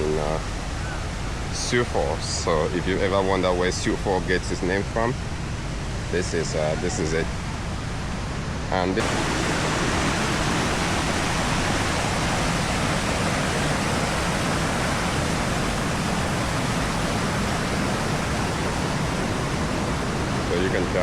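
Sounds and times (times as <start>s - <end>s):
waterfall rushing: 9.0s - 21.0s.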